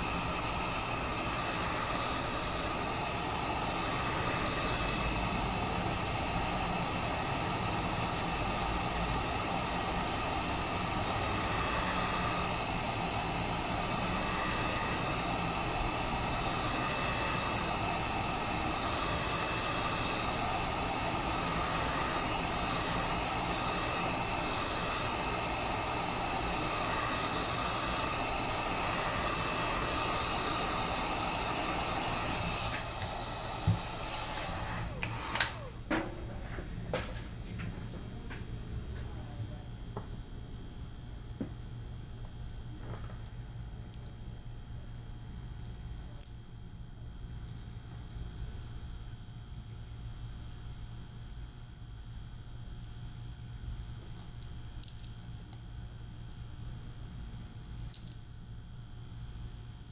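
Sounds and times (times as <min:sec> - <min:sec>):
motor whining: 0:00.0 - 0:35.9
heat gun blowing air: 0:00.0 - 0:36.0.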